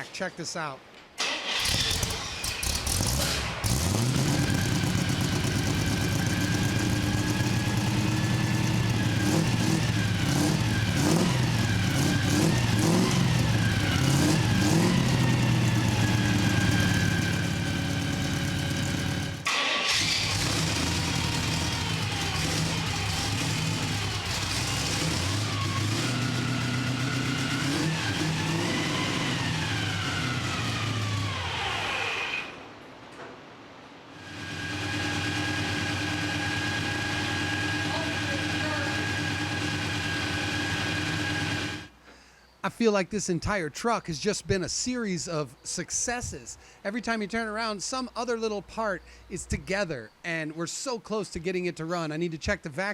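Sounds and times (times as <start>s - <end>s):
car engine idling and revving: 1.4s - 32.5s, 34.2s - 42.0s.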